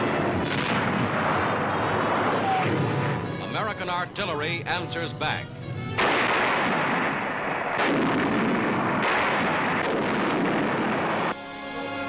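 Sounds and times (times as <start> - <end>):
artillery fire: 0.0 - 3.4, 6.0 - 11.4
music: 0.0 - 6.8, 11.3 - 12.0.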